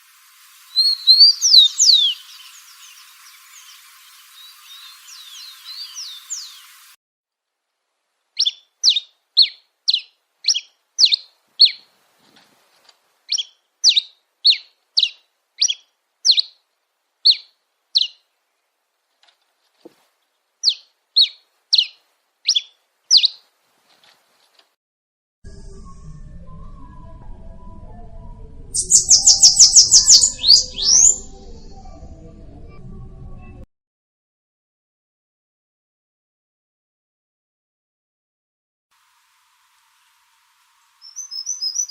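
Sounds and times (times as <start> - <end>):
songbird chirping: 0.7 - 6.9, 8.2 - 24.7, 26.0 - 33.6, 41.0 - 41.9.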